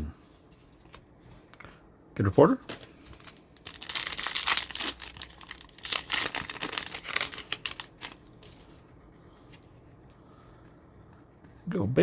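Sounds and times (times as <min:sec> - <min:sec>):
foil wrapper crinkling: 0:03.1 - 0:08.8.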